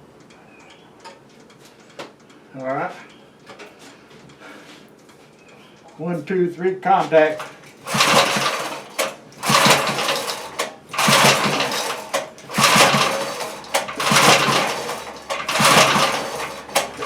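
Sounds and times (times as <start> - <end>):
recoil cord pull-start: 7.2 - 17.0
small engine sputtering: 7.2 - 17.0.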